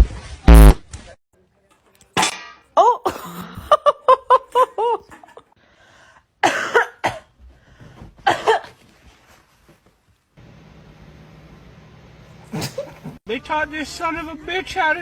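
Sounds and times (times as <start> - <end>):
small dogs yapping: 12.4 - 13.2
harsh dog barks: 12.5 - 13.2.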